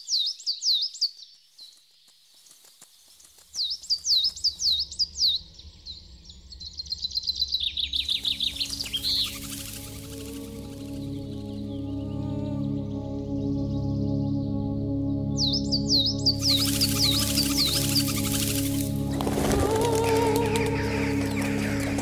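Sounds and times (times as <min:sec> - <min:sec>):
songbird singing: 0:00.0 - 0:22.0
low music drone: 0:04.9 - 0:22.0.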